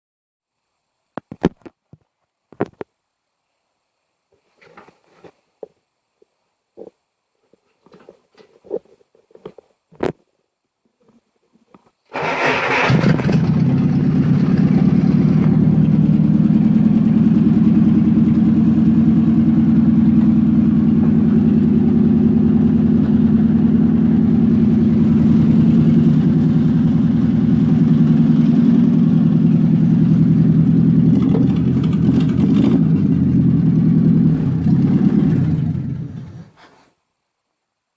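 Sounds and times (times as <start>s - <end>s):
petrol engine running: 12.1s - 36.5s.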